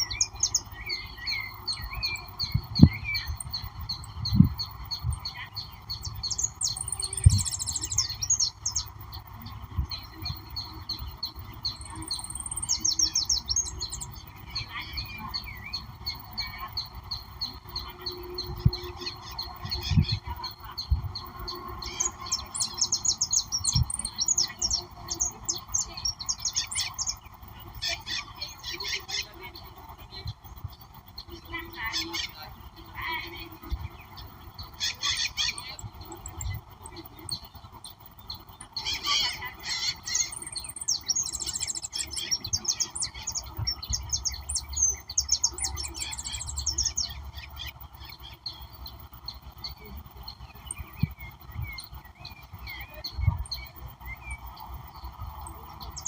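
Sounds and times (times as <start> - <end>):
birds chirping and trilling: 0.0 - 56.0
steady background hiss: 0.0 - 56.0
harsh bird squawks: 34.8 - 35.8.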